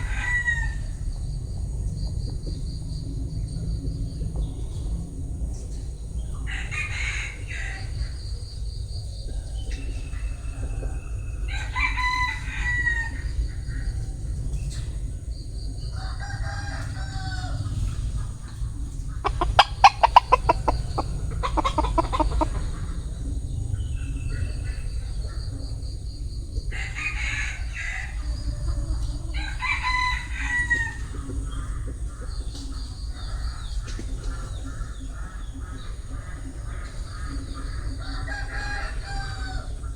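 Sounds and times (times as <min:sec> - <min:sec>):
rooster crowing: 0:00.0 - 0:01.0, 0:06.4 - 0:08.0, 0:10.2 - 0:13.4, 0:15.9 - 0:18.0, 0:19.2 - 0:23.0, 0:26.7 - 0:31.2, 0:38.0 - 0:39.8
steady low rumble: 0:13.2 - 0:26.7.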